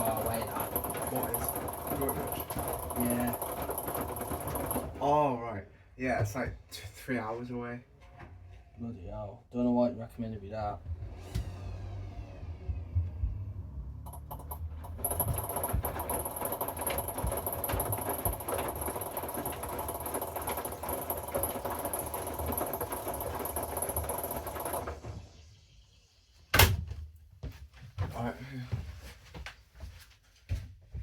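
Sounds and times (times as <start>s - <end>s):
washing machine drum churning: 0.0s - 5.1s, 14.0s - 25.5s.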